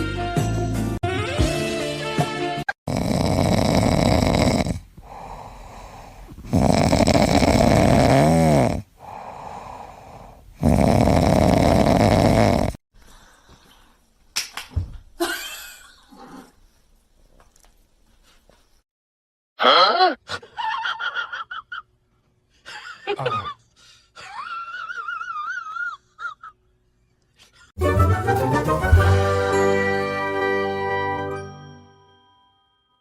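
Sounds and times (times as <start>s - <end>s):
pet snoring loudly: 2.9s - 12.8s
quiet breaths: 4.8s - 6.5s, 8.8s - 10.6s, 13.0s - 14.2s.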